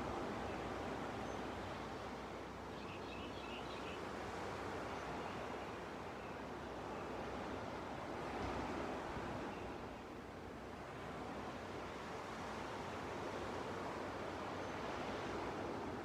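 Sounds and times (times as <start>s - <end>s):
ocean waves washing onto beach: 4.0s - 16.0s.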